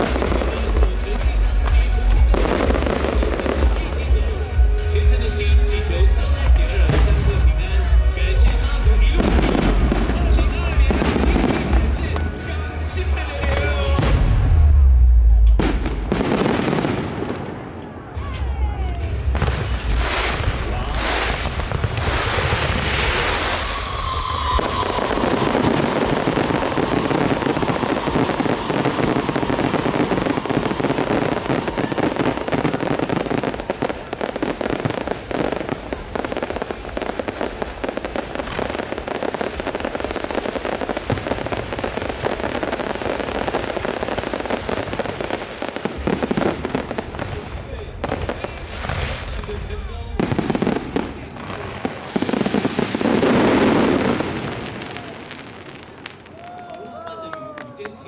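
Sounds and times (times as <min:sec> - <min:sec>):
rapid crackling firework bursts: 0:00.0 - 0:14.8, 0:15.6 - 0:18.5, 0:19.1 - 0:56.4
falling firework whistle: 0:19.8 - 0:35.7.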